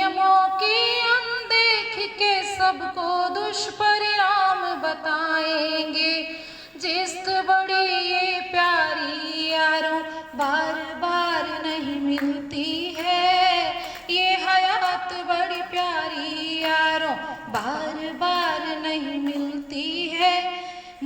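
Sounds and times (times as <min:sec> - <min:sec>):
woman singing: 0:00.0 - 0:21.0.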